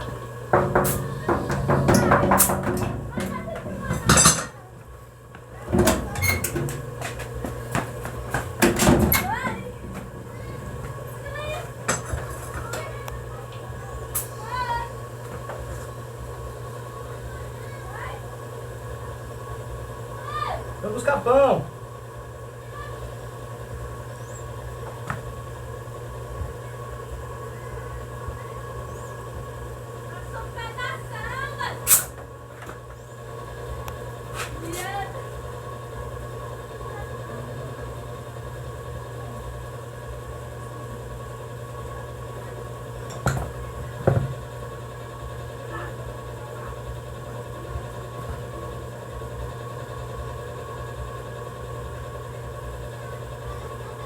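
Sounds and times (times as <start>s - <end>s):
small engine idling: 0.0s - 14.7s.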